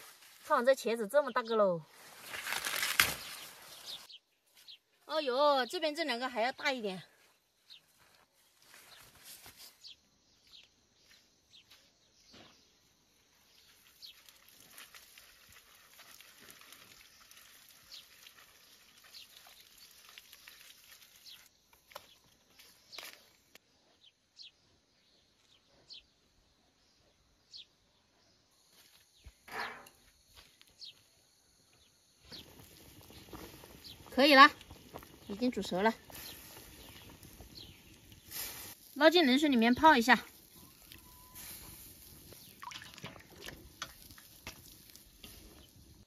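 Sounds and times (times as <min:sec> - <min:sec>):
high bird chirps: 0:39.5 - 0:42.8.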